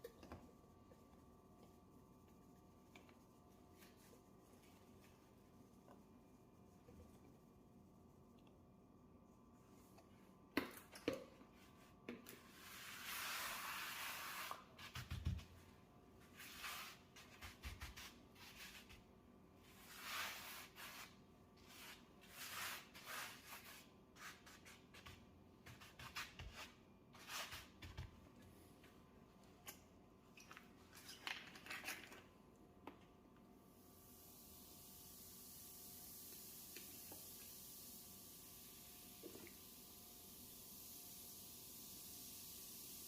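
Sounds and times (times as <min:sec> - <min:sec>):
scrubbing strokes on stove: 0:12.4 - 0:15.1, 0:16.2 - 0:27.8
hiss: 0:34.0 - 0:43.0.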